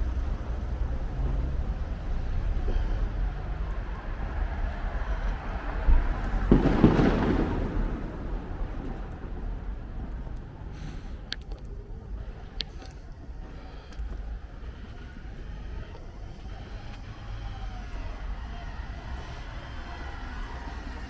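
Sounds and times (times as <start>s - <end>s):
steady low rumble: 0.0s - 21.0s
distant fireworks booming: 5.2s - 12.6s.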